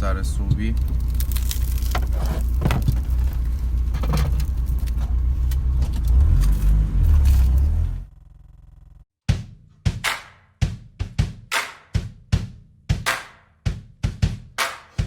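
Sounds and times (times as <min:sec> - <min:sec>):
car road rumble from cabin: 0:00.0 - 0:09.1
small knocks and rattles: 0:00.5 - 0:06.2.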